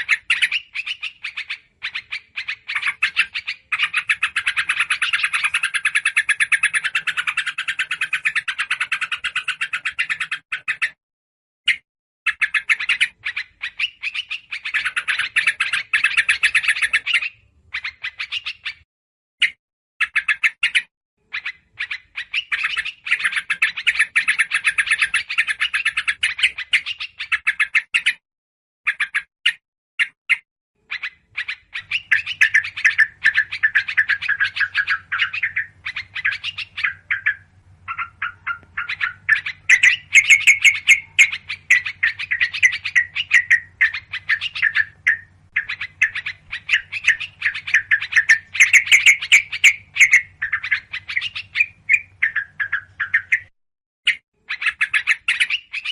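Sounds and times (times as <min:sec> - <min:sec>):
bulbuls chattering calls: 0:00.0 - 0:10.9, 0:31.0 - 0:53.5
small birds chirping: 0:00.0 - 0:11.0, 0:11.6 - 0:28.2, 0:28.9 - 0:55.9.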